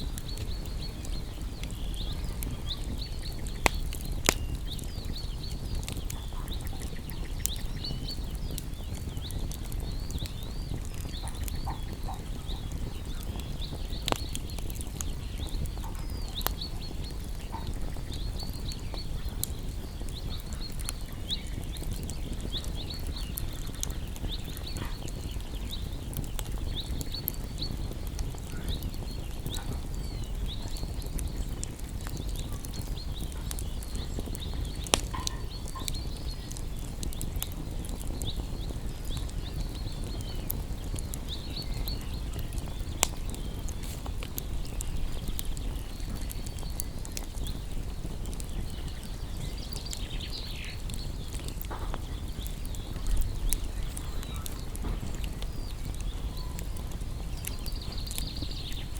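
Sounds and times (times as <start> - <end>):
campfire crackling: 0.0 - 58.9
high chirping calls: 0.0 - 58.9.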